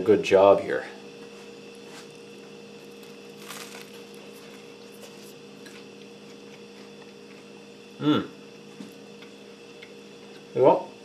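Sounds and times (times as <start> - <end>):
steady low hum: 0.0 - 11.0
crunching and chewing toast: 1.7 - 8.0, 8.6 - 10.6.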